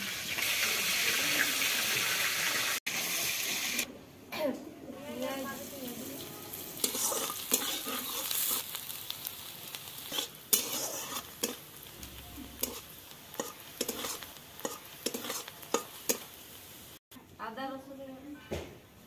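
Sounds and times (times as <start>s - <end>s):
onion sizzling in hot oil: 0.0s - 3.9s, 5.0s - 17.0s
metal spatula scraping wok: 6.3s - 8.8s, 9.7s - 16.4s.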